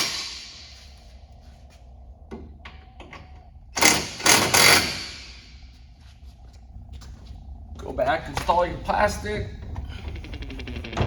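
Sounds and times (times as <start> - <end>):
impact wrench bursts: 3.8 - 5.4.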